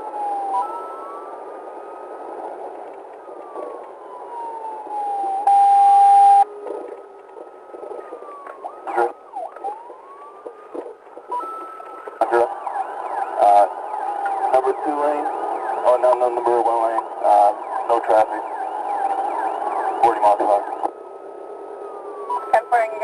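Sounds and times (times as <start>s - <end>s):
loud steady siren blast: 0.0s - 23.0s
police siren wailing: 0.0s - 23.0s.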